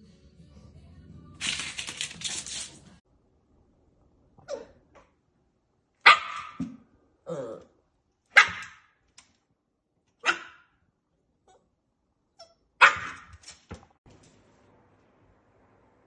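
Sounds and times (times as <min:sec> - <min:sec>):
puppy barking: 0:06.0 - 0:06.7, 0:08.3 - 0:08.9, 0:10.2 - 0:10.7, 0:12.4 - 0:13.4.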